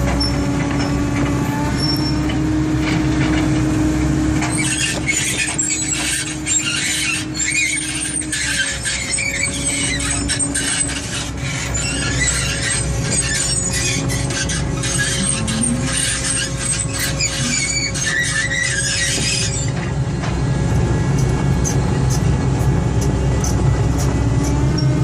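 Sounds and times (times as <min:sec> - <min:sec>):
excavator engine rumbling: 0:00.0 - 0:25.0
high-pitched squealing: 0:04.4 - 0:19.9.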